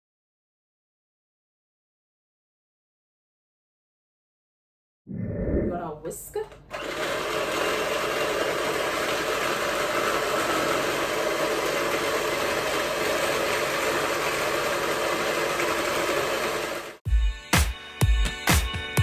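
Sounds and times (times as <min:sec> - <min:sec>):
electric whisk running: 0:06.7 - 0:17.0.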